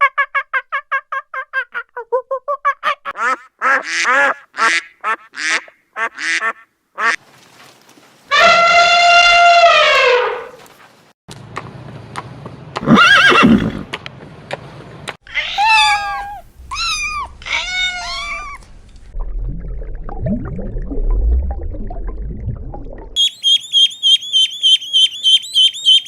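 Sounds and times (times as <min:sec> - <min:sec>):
animal calls: 0:15.3 - 0:18.6, 0:23.2 - 0:26.0.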